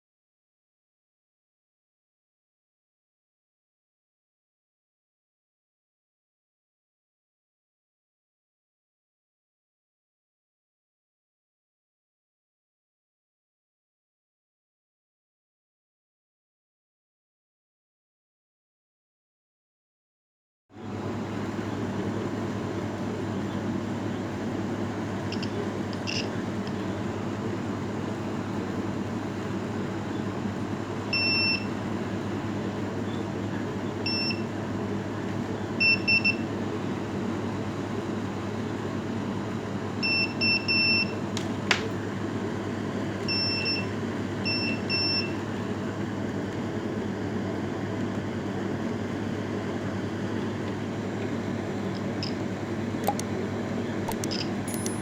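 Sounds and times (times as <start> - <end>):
steady hum: 20.8 - 48.0, 48.6 - 55.0
fire alarm beeps: 25.3 - 26.3, 31.1 - 31.7, 34.0 - 34.5, 35.8 - 36.5, 40.0 - 41.2, 43.3 - 45.4, 54.3 - 55.0
sharp click: 53.0 - 53.3, 54.1 - 55.0.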